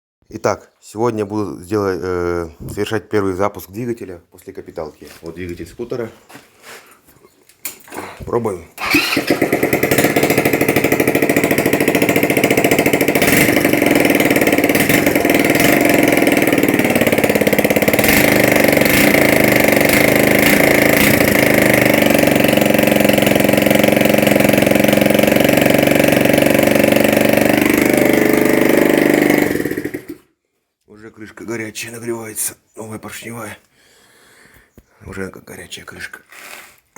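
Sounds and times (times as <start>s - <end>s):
scooter engine running: 8.8s - 30.2s.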